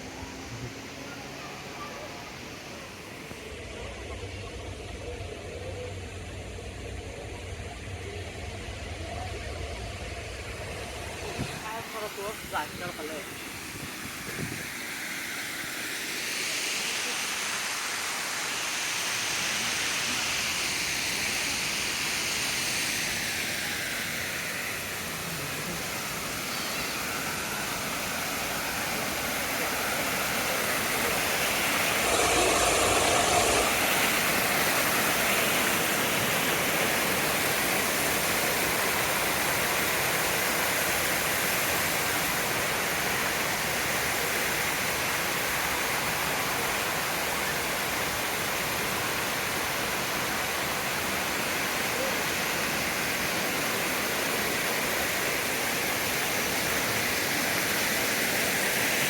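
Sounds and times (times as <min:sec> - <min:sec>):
cascading water rushing: 0:11.6 - 0:22.9, 0:23.5 - 0:59.0.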